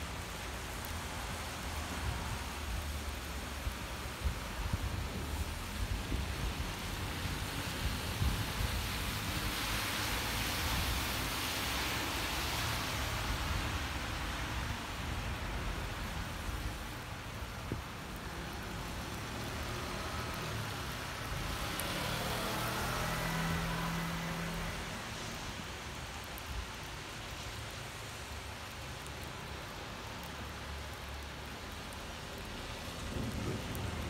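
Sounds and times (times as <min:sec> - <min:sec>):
car passing on wet road: 0:00.0 - 0:34.0
rain falling on a street: 0:00.0 - 0:34.0.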